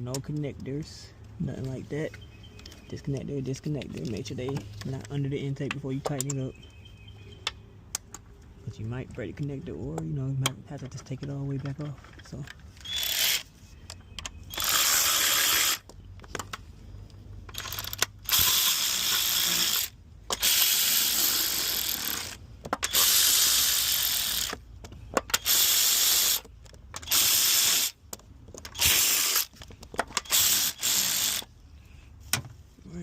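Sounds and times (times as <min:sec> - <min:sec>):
ratchet clicking: 0:14.2 - 0:15.9, 0:17.5 - 0:24.6, 0:25.2 - 0:28.0, 0:28.6 - 0:31.5.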